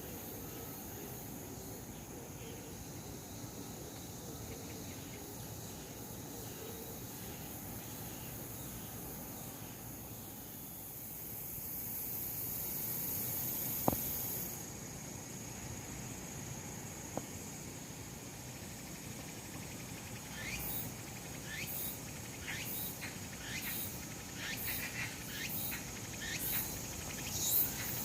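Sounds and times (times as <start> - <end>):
crickets chirping chorus: 0.0 - 28.0
high insect trill: 0.0 - 28.0.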